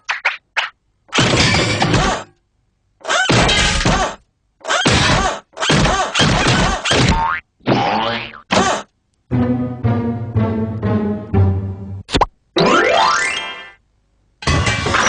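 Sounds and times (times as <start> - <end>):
cartoon crashing and smashing: 1.1 - 2.3, 14.4 - 15.0.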